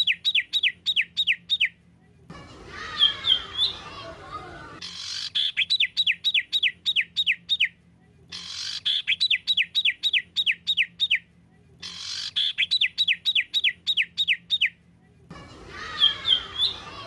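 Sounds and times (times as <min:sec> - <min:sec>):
songbird rasping and whistling: 0:02.5 - 0:07.7, 0:15.6 - 0:17.0.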